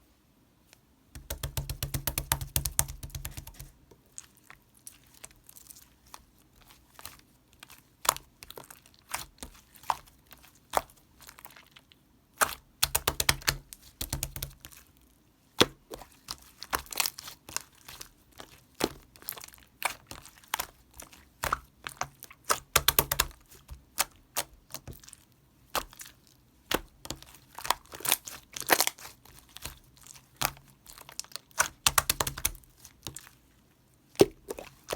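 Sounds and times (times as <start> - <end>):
slime squelching: 1.2 - 33.5, 34.1 - 34.9
slime crackling and popping: 15.6 - 33.3.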